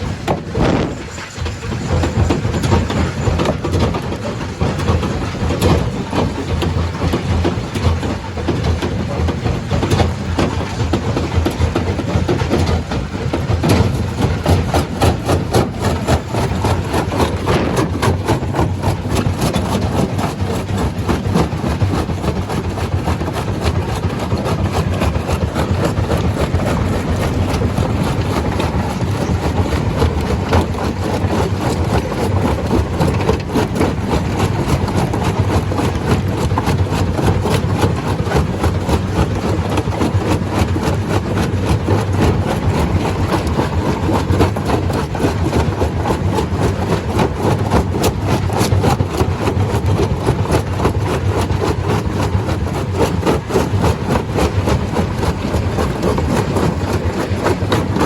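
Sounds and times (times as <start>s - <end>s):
heavy engine drone: 0.0s - 35.2s
stone crusher clattering: 0.0s - 51.6s.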